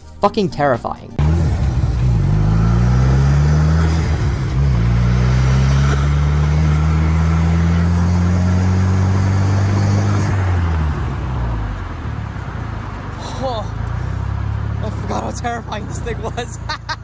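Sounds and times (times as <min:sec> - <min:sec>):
road and wind noise: 0:01.1 - 0:17.0
car engine revving: 0:01.2 - 0:17.0.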